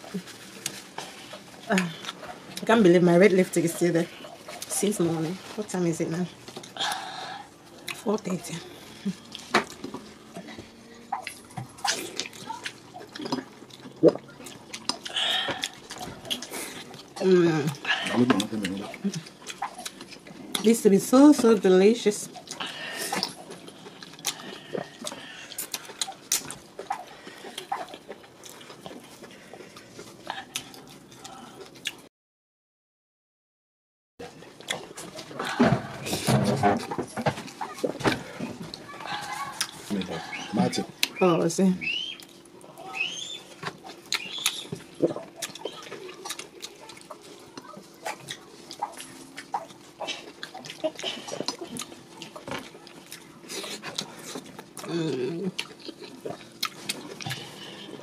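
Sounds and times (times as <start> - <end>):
wet chewing and lip smacks: 9.0 - 20.8, 22.3 - 32.1, 34.5 - 35.7, 36.8 - 41.2, 41.8 - 58.0.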